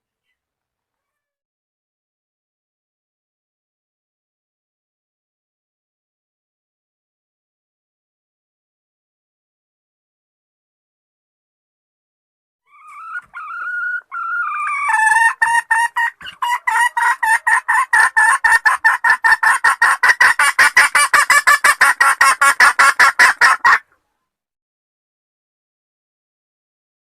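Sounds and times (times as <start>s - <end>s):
hen calling with rising notes: 12.7s - 18.4s
hen clucking rapidly: 12.7s - 23.9s.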